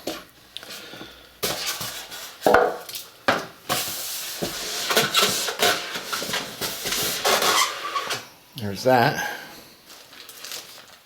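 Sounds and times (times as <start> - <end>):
cardboard rustling and scraping: 1.4 - 2.9, 3.7 - 8.2.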